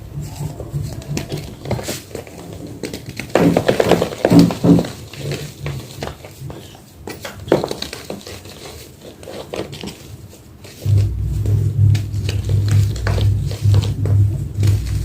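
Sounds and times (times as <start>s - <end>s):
loud low hum: 0.0s - 1.7s, 10.8s - 15.0s.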